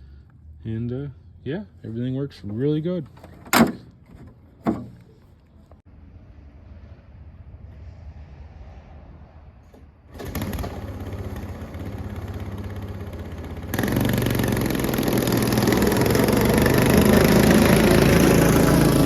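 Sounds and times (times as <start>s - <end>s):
snowmobile engine running: 10.2s - 19.0s.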